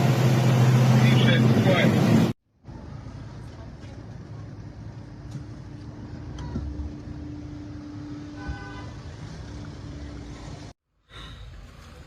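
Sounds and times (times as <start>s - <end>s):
short horn toot: 8.3s - 9.0s.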